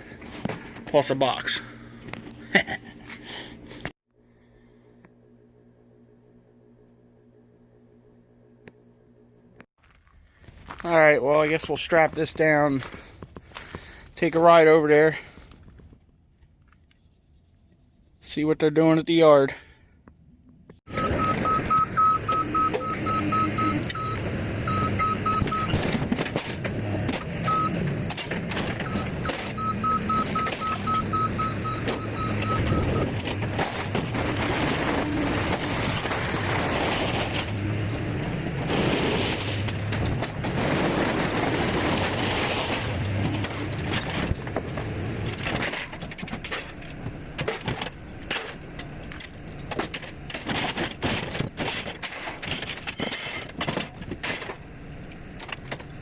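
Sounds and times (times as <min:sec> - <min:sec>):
vehicle low rumble: 0:20.2 - 0:56.0
high electronic beeps: 0:20.9 - 0:25.8, 0:28.8 - 0:33.1.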